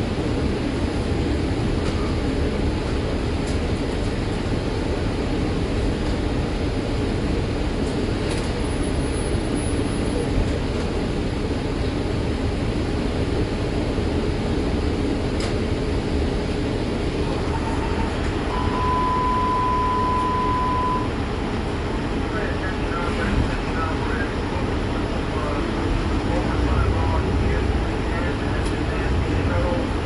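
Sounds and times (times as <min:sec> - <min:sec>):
bus engine and road rumble: 0:00.0 - 0:30.0
steady beep: 0:18.4 - 0:21.2
short high beep: 0:18.5 - 0:21.1.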